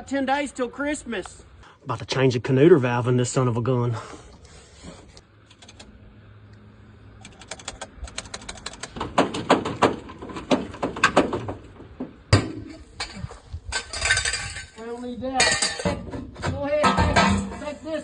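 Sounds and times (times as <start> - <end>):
tools clicking and knocking: 7.2 - 11.6.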